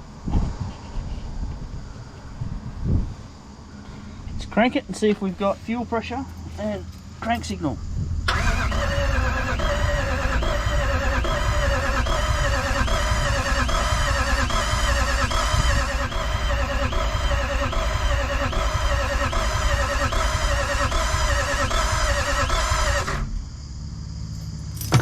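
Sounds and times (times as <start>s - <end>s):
diesel engine cranking on starter: 8.2s - 25.0s.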